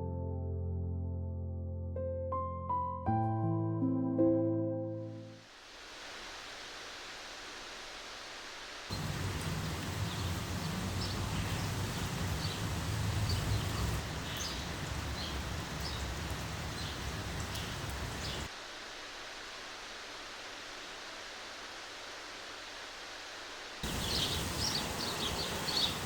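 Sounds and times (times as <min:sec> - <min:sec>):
steady hiss: 0:05.3 - 0:26.0
steady rain falling: 0:05.4 - 0:26.0.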